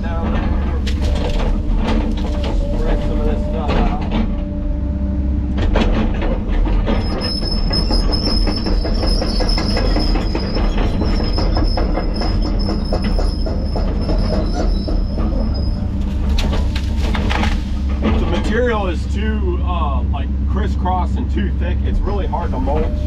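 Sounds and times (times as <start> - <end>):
diesel engine running: 0.0 - 23.0
high-pitched squeal: 6.9 - 16.0.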